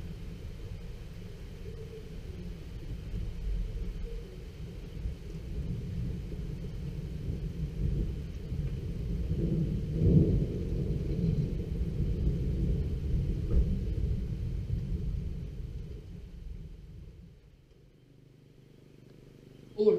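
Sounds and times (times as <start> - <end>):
rolling thunder rumble: 0.0 - 17.5.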